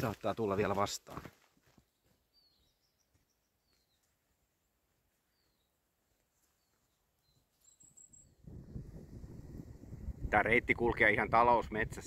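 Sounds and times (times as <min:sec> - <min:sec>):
faint bird chirps: 0:01.8 - 0:04.4, 0:05.2 - 0:05.8, 0:06.4 - 0:08.5
low rumbling noise: 0:08.4 - 0:11.3.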